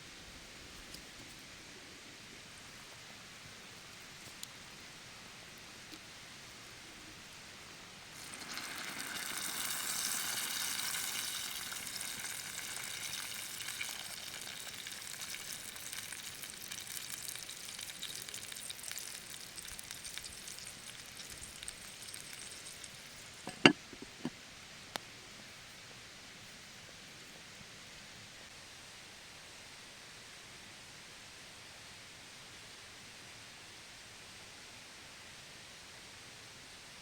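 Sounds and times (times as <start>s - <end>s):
food sizzling in hot fat: 7.8s - 24.3s.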